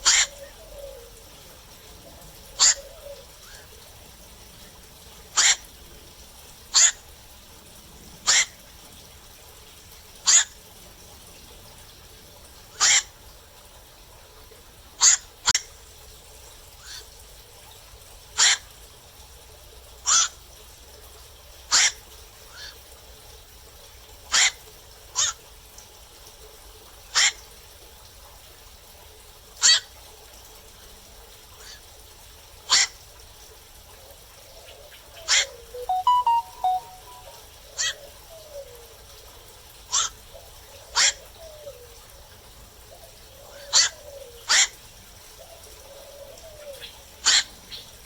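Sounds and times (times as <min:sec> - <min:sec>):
heron kwak calls: 0:00.0 - 0:00.4, 0:12.8 - 0:13.1.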